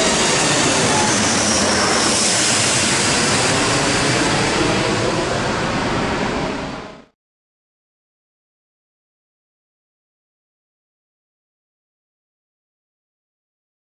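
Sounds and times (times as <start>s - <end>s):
jet engines roaring: 0.0s - 7.1s.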